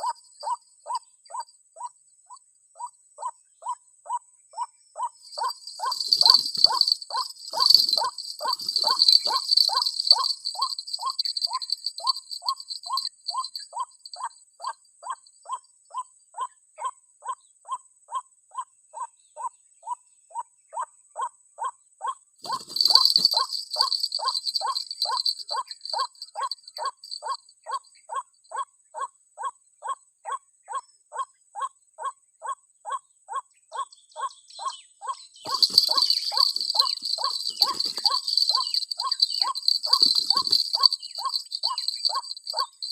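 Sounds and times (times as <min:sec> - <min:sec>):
insects buzzing: 0:05.2 - 0:14.2, 0:22.4 - 0:27.4, 0:35.3 - 0:42.9
waterhen calling: 0:05.3 - 0:13.6, 0:35.5 - 0:42.9.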